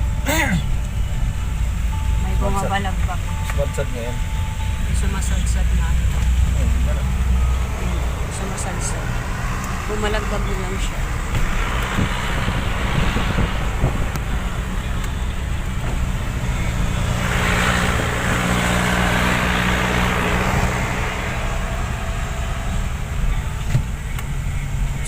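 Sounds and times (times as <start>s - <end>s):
truck engine running: 0.0s - 25.0s
broad rushing noise: 6.4s - 23.9s.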